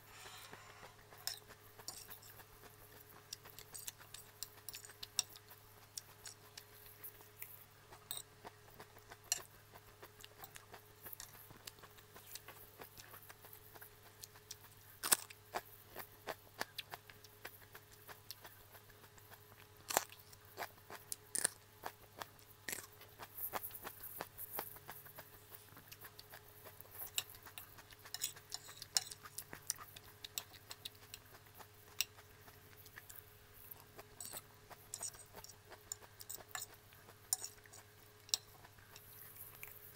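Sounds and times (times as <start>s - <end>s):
faint steady hum: 0.0s - 39.9s
fork clicking on a plate: 0.1s - 2.5s, 27.0s - 31.3s, 34.2s - 39.8s.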